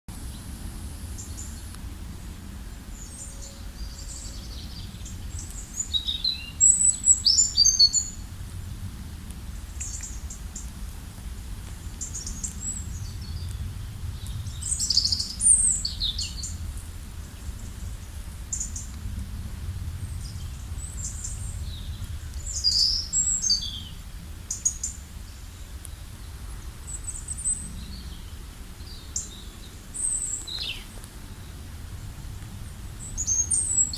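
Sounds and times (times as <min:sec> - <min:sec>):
steady low rumble: 0:00.1 - 0:33.9
birds singing and chirping: 0:02.7 - 0:08.3, 0:09.7 - 0:10.7, 0:11.8 - 0:19.0, 0:20.0 - 0:31.7, 0:32.6 - 0:33.9.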